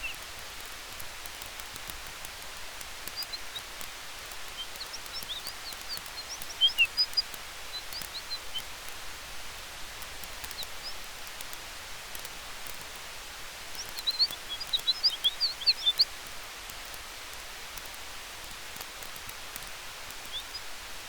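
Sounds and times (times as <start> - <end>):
campfire hissing and crackling: 0.0 - 21.0
wind: 0.0 - 21.0
bird chirping: 3.0 - 8.9, 10.3 - 11.4, 13.7 - 16.2, 20.1 - 20.8.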